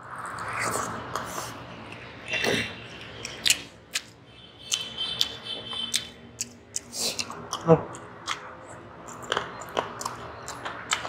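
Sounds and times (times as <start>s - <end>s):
person chewing food: 0.2s - 11.0s
wet mouth sounds: 4.7s - 11.0s.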